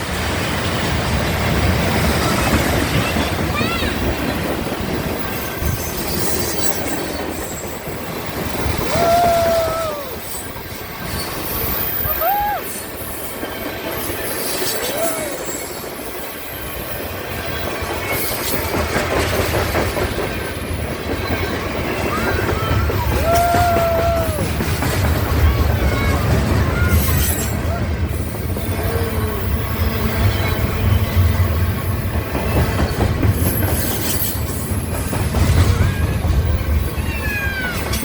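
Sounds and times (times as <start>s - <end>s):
train cars rolling on rails: 0.0s - 38.0s
wheel squeal: 2.3s - 9.5s, 10.1s - 18.7s.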